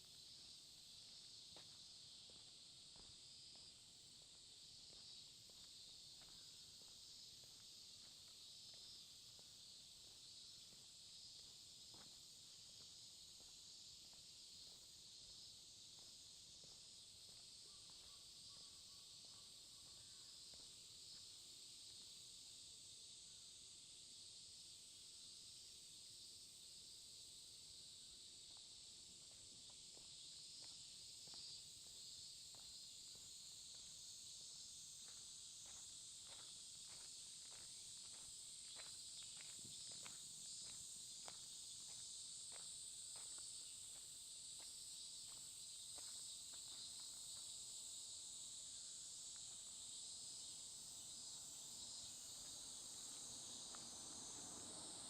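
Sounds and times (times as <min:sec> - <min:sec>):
insects chirring: 0:00.0 - 0:55.0
soft footsteps walking: 0:01.0 - 0:18.1, 0:28.6 - 0:47.5.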